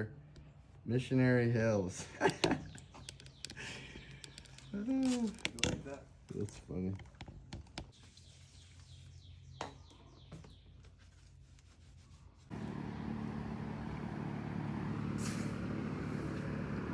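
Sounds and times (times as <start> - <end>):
motor running: 12.5 - 16.9.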